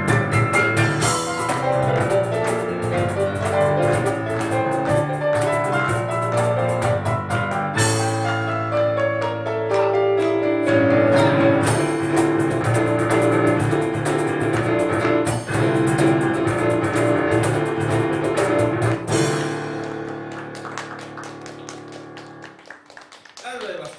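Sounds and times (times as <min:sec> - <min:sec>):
cajon drum hits: 0:00.0 - 0:08.4, 0:11.6 - 0:21.1
piano chords: 0:00.0 - 0:22.8.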